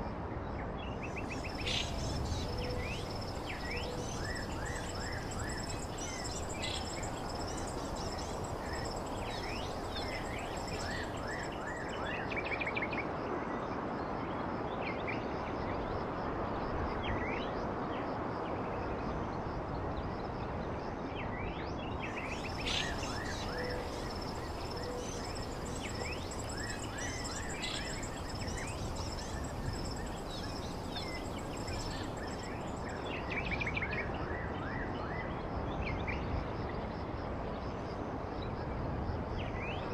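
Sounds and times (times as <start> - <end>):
wild birds chirping: 1.1 - 12.4, 22.0 - 33.1
background hiss: 1.2 - 12.0, 22.1 - 33.1
high-pitched insect trill: 1.2 - 12.2, 22.1 - 33.4.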